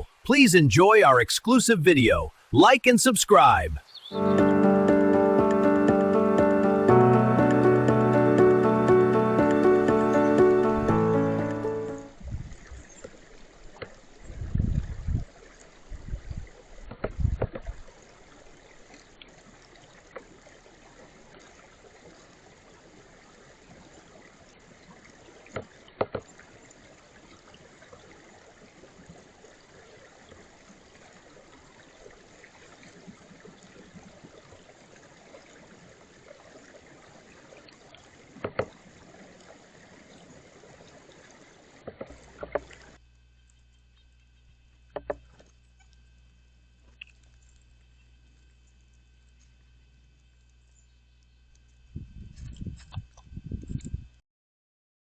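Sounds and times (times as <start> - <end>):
brook running: 0.0 - 12.1.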